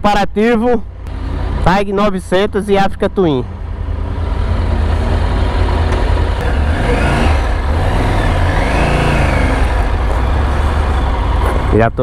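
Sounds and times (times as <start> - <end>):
wind and road noise: 0.0 - 12.0
motorcycle engine accelerating: 3.6 - 12.0.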